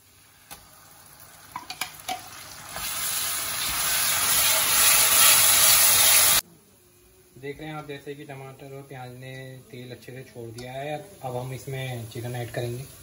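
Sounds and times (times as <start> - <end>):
tomatoes sizzling in hot oil: 0.0 - 6.4, 10.0 - 13.0.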